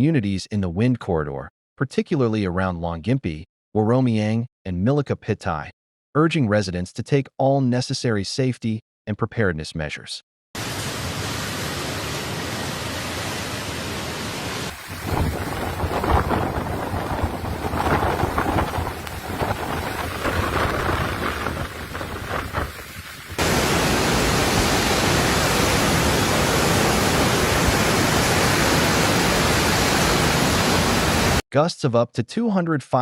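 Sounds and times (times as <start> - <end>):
heavy rain: 10.6 - 31.4
strong wind: 14.1 - 31.4.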